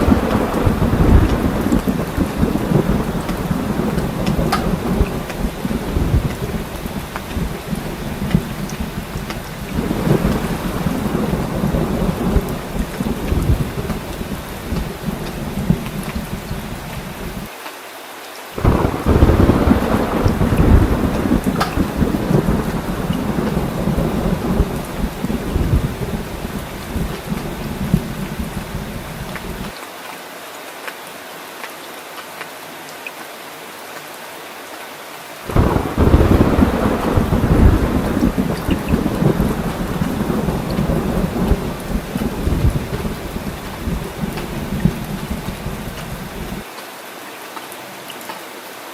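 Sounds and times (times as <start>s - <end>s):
drips ticking: 0.0s - 17.4s
rolling thunder: 0.0s - 17.5s, 18.6s - 29.7s, 35.5s - 46.6s
heavy rain: 0.0s - 48.9s
sharp raindrops: 0.0s - 48.9s.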